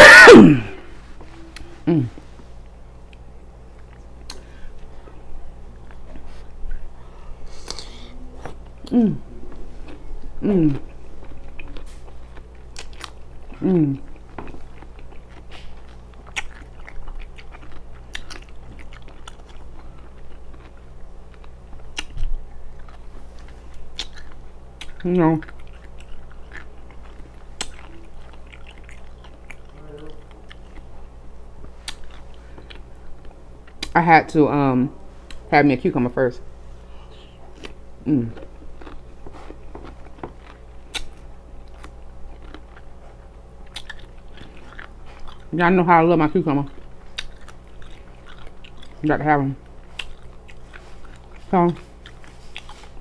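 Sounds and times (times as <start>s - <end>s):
wet mouth clicks: 4.2s - 4.4s
biting and chewing: 7.5s - 34.0s, 37.4s - 45.6s, 46.4s - 53.0s.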